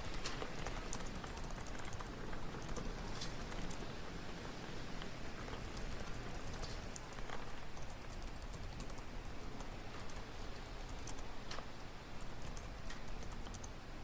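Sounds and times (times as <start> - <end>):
low room hum: 0.0 - 14.0
small clicks and taps: 5.0 - 13.8.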